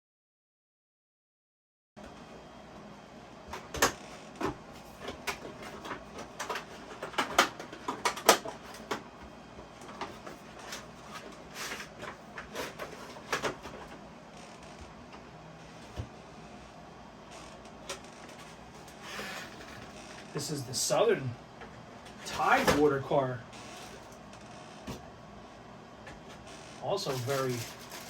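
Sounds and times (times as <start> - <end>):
packaging rustling: 27.0 - 28.0.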